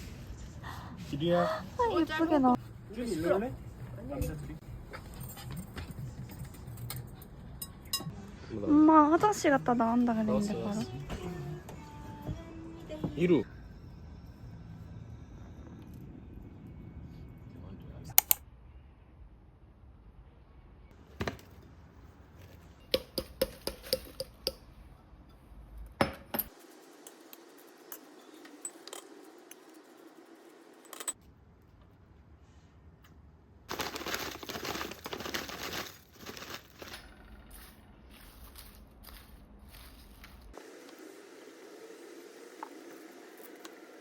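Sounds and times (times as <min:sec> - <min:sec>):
small hard objects clinking: 0:33.7 - 0:40.6.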